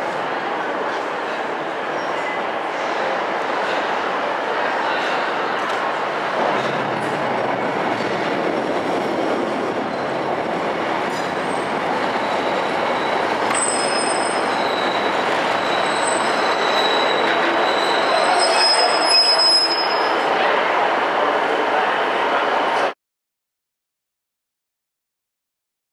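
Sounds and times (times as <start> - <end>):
high-pitched wheel squeal: 12.2 - 20.2.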